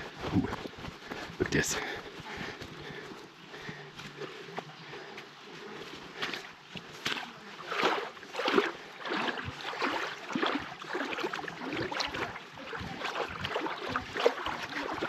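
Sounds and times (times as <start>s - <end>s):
water splashing around wading legs: 5.6s - 15.0s.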